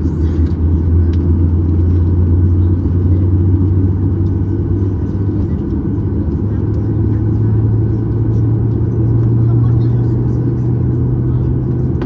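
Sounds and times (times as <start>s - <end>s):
jet engine cabin drone: 0.0s - 12.0s.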